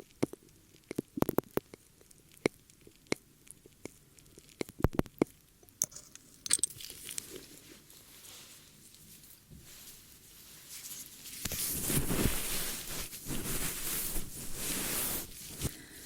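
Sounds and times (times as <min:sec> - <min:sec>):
sharp crackles and clicks: 0:00.0 - 0:07.3
brushing and rubbing hiss: 0:08.1 - 0:15.8.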